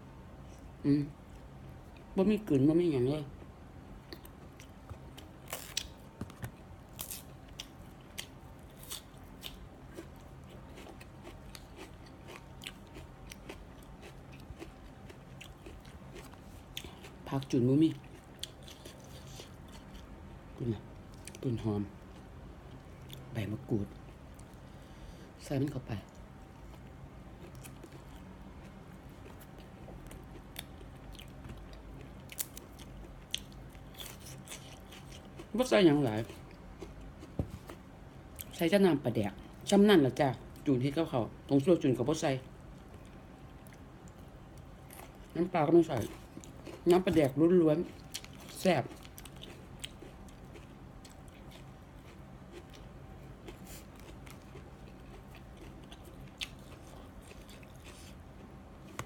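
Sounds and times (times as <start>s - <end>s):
person chewing with mouth smacks: 47.9s - 59.0s.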